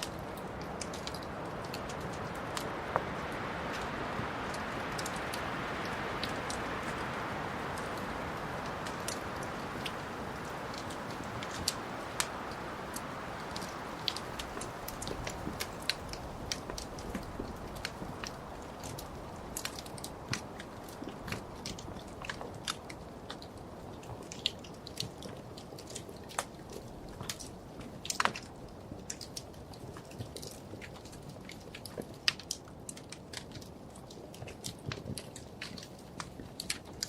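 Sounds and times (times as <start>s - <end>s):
wood fire crackling and popping: 0.0s - 37.0s.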